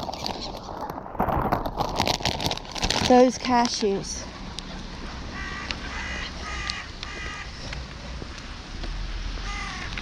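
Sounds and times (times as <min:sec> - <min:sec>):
crows cawing: 0:05.3 - 0:07.8, 0:09.4 - 0:10.0.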